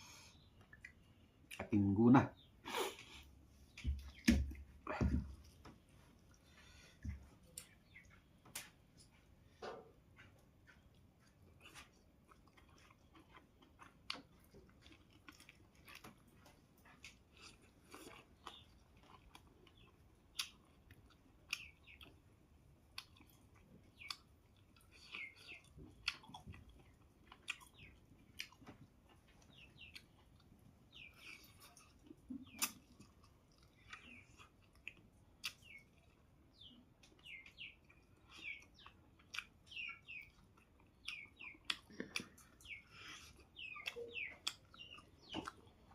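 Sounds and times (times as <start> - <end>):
person chewing with mouth smacks: 0.4 - 1.7, 10.1 - 45.9.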